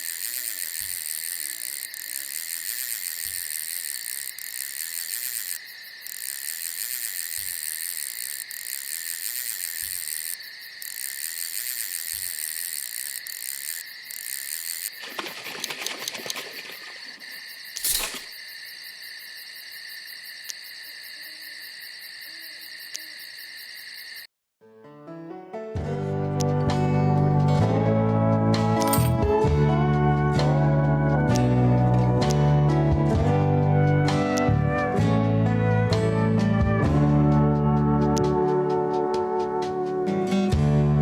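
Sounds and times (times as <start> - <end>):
crickets trilling: 0.0 - 24.3
rustling: 14.9 - 18.4.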